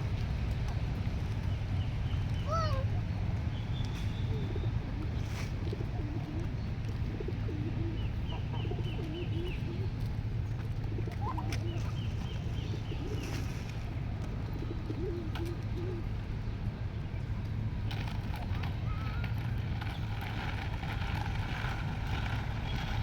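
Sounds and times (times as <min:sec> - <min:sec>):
pigeons cooing: 0:04.0 - 0:10.1, 0:10.8 - 0:16.3.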